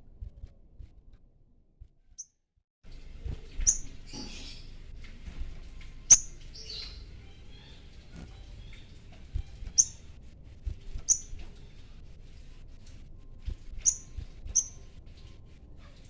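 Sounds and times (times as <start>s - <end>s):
raspy bird chatter: 6.1s - 10.2s, 11.0s - 12.0s, 13.7s - 14.9s
bird calling high chips: 9.7s - 10.1s, 13.8s - 14.9s.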